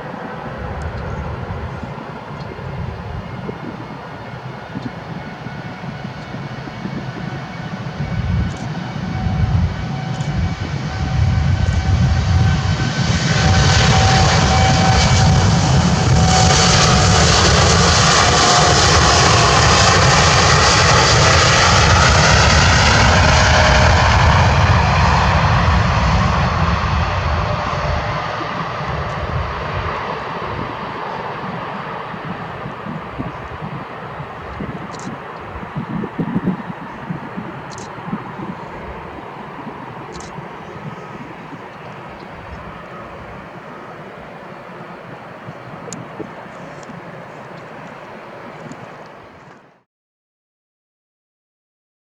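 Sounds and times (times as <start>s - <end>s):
jet engines at takeoff: 0.0s - 49.8s.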